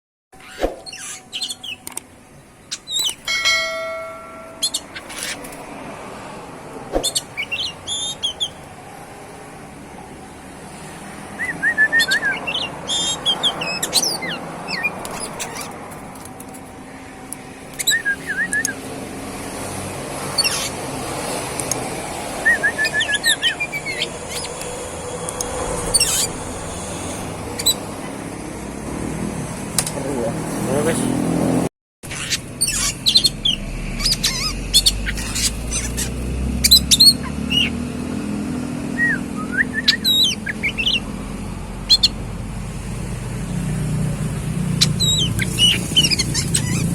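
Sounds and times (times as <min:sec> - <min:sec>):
bird singing trills and whistles: 0:00.4 - 0:01.9, 0:02.7 - 0:05.5, 0:07.0 - 0:08.6, 0:11.4 - 0:15.7, 0:17.8 - 0:18.8, 0:22.4 - 0:24.6, 0:32.1 - 0:37.8, 0:39.0 - 0:41.1, 0:41.9 - 0:42.2, 0:44.8 - 0:46.9.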